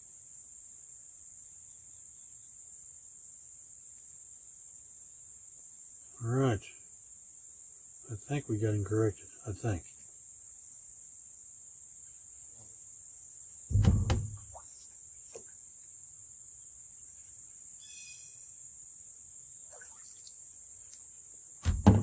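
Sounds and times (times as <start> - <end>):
crickets chirping chorus: 0.0 - 22.0
dull knock: 13.7 - 14.6, 21.7 - 22.0.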